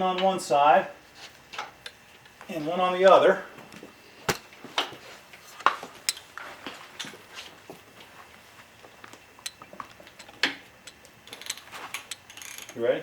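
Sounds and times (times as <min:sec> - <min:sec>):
metallic clicks of wrenches and sockets: 0:10.2 - 0:12.8.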